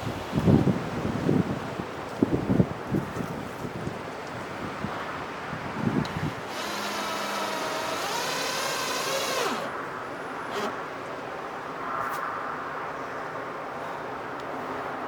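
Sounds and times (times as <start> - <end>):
drill trigger click: 6.0 - 9.8, 10.5 - 10.8
power drill running: 6.0 - 9.8, 10.5 - 10.8.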